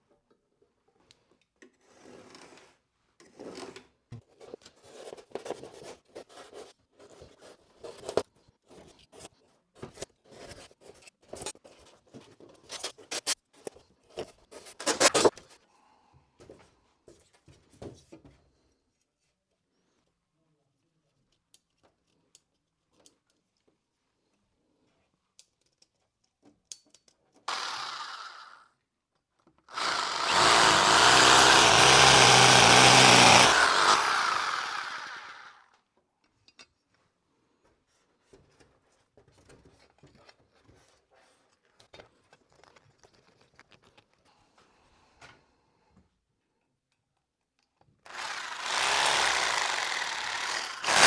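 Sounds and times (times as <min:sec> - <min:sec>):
light clicks and handling noises: 0:20.8 - 0:27.4, 0:36.0 - 0:45.5
power drill running: 0:27.5 - 0:28.6, 0:29.7 - 0:35.6, 0:48.1 - 0:51.0.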